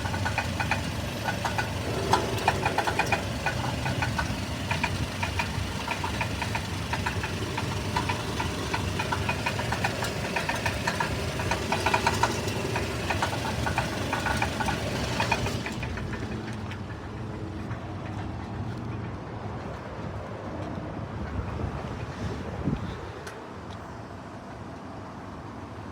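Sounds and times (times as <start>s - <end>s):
fast knocking rattle: 0.0s - 17.3s
engine running: 0.0s - 20.2s.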